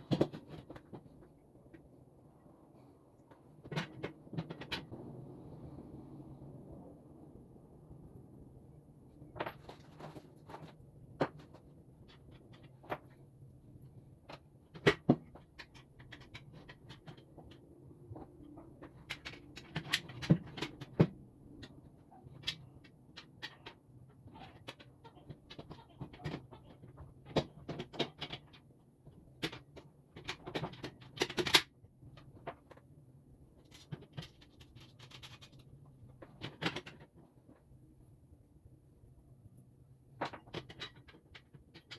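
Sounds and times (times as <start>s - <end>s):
clatter of table parts and tools: 9.4s - 13.3s, 14.1s - 32.9s, 33.6s - 37.6s, 40.2s - 41.9s.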